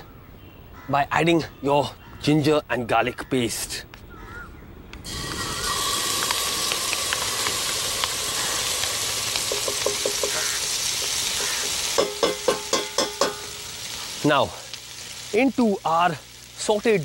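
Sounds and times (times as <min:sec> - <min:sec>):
paste sizzling in hot oil: 0:05.0 - 0:17.0
metal utensil clinking on pan: 0:09.5 - 0:10.5, 0:12.0 - 0:13.6.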